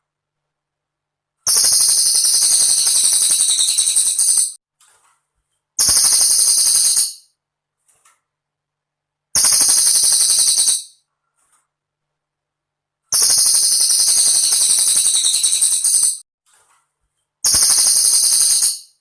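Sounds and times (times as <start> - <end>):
bird singing high jingling trill: 1.9 - 4.6, 13.2 - 16.2, 17.5 - 19.0.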